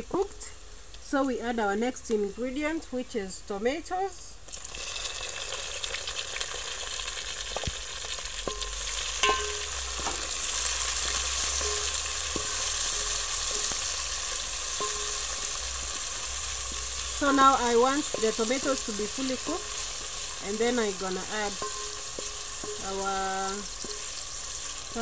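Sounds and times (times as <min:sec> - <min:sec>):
tomatoes sizzling in oil: 0:00.0 - 0:25.0
wooden spoon knocking on pot: 0:16.7 - 0:24.2.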